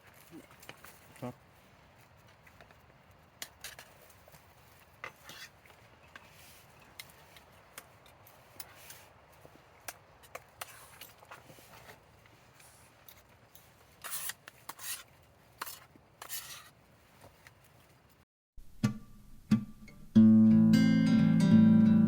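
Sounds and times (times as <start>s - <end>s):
small objects scraping and rustling: 3.4s - 7.6s, 8.3s - 9.6s, 10.3s - 18.0s.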